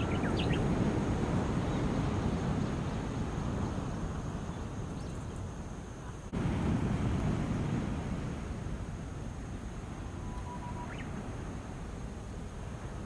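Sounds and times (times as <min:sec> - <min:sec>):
small waves washing on shore: 0:06.3 - 0:13.0.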